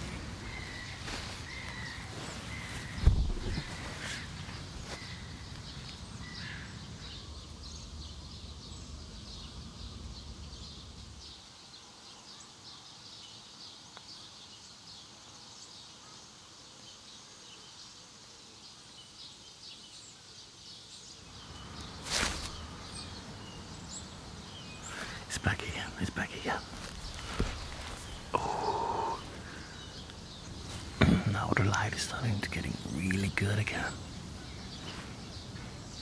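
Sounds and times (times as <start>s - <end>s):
small birds chirping: 0.0s - 36.0s
loud thump: 3.0s - 3.7s.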